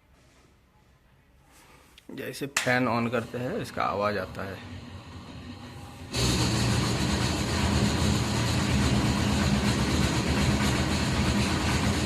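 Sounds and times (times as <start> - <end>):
loose fan rattling: 2.6 - 12.0
oven fan humming: 2.8 - 12.0.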